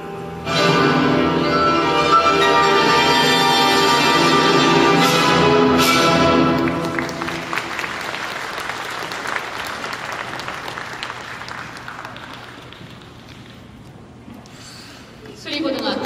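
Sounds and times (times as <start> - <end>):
audience applauding: 6.4 - 13.8.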